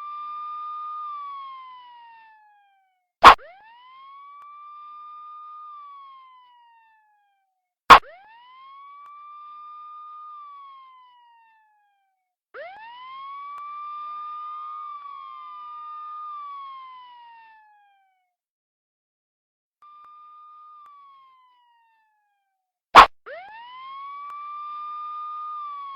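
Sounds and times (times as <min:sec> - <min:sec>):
police siren wailing: 0:00.0 - 0:18.2, 0:19.8 - 0:25.9
sharp loud click: 0:03.2 - 0:03.5, 0:07.9 - 0:08.2, 0:23.0 - 0:23.2.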